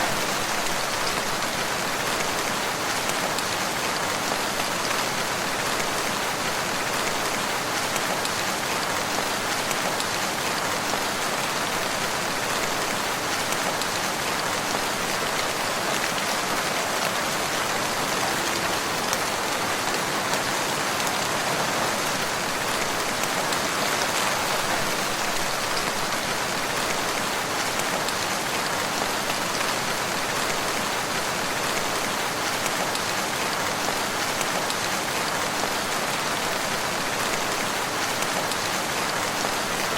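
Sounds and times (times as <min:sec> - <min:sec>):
rain falling on a surface: 0:00.0 - 0:39.9.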